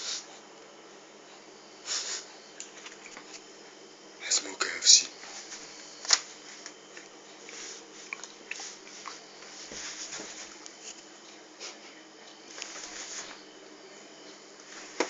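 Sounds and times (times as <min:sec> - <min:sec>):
soft rustling: 0:07.5 - 0:11.0.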